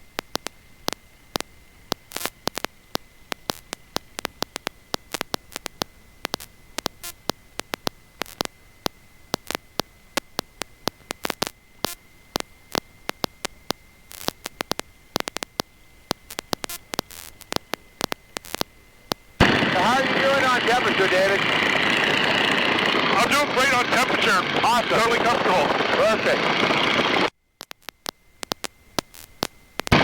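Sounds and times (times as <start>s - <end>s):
electrical static crackling: 0.0s - 30.0s
high-pitched whine: 10.9s - 27.3s.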